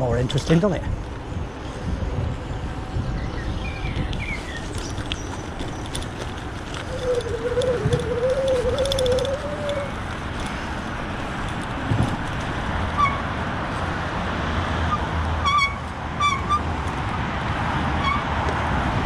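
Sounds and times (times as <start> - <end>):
wind and rolling noise: 0.0 - 19.0
high chirp-like squeaks: 3.9 - 10.6, 13.0 - 13.3, 14.9 - 16.7.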